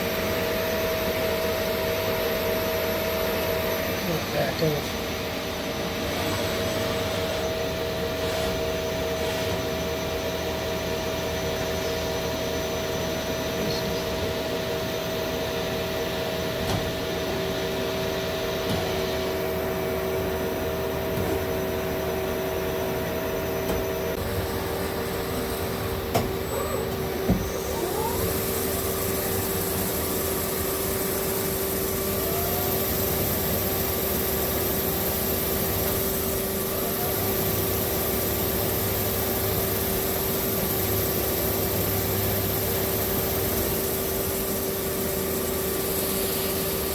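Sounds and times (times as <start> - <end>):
machinery hum and whir: 0.0 - 46.9
steady machine tones: 21.6 - 46.9.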